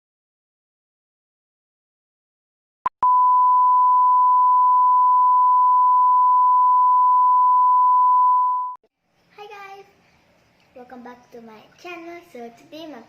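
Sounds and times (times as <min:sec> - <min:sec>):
steady electronic beep tone: 0:03.0 - 0:08.8.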